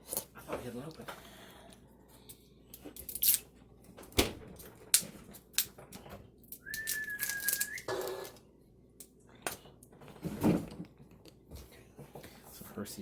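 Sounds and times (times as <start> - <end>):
high whistling tone: 6.6 - 8.0
bottles clattering in refrigerator: 10.0 - 11.2.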